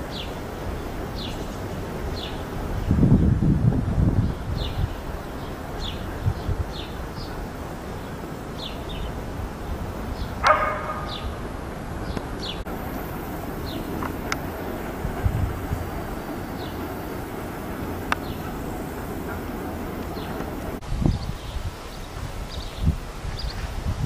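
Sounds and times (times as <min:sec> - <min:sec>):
small birds chirping: 0:00.0 - 0:03.4, 0:04.1 - 0:23.8
dog barking: 0:10.4 - 0:11.4.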